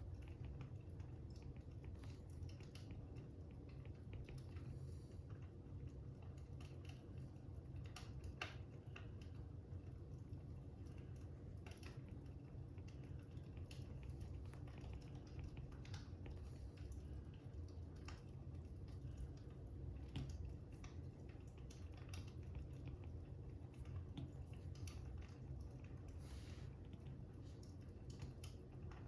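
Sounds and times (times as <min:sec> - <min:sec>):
low steady rumble: 0:00.0 - 0:29.0
wood fire crackling: 0:00.0 - 0:29.0.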